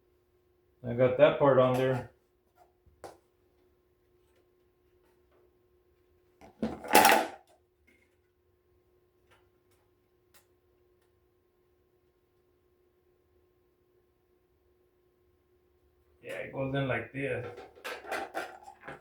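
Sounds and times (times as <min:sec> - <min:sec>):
faint steady hum: 0:00.0 - 0:19.0
plastic parts scraping: 0:17.4 - 0:19.0.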